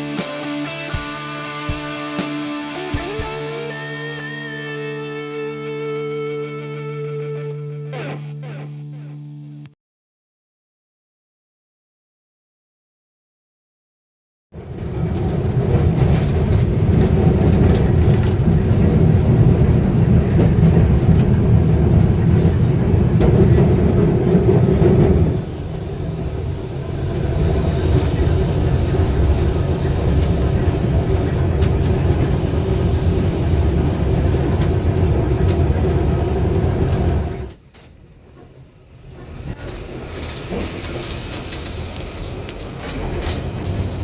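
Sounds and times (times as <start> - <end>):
electric tram rumbling on track: 14.6 - 44.0.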